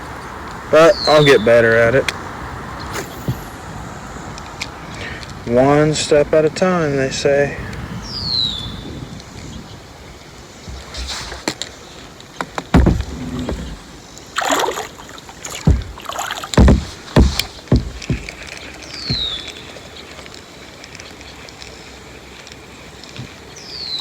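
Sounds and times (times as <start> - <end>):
paddle knocking against hull: 12.4 - 19.5
water splashing off paddle: 12.7 - 18.4.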